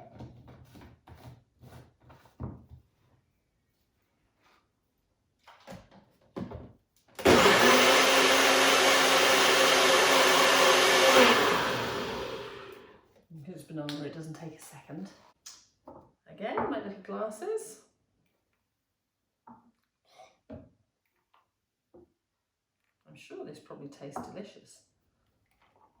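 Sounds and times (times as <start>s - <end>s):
electric blender running: 7.2s - 12.9s.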